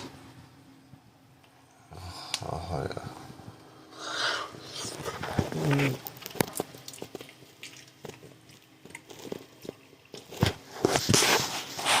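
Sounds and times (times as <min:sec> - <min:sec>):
person chewing: 0:04.6 - 0:10.4
crunching bites: 0:05.3 - 0:10.6.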